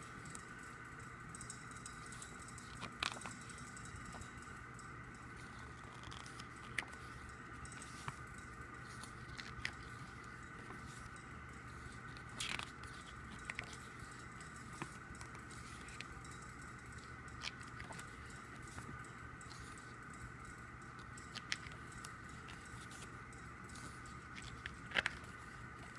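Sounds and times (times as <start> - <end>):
paper rustle: 5.4 - 16.3.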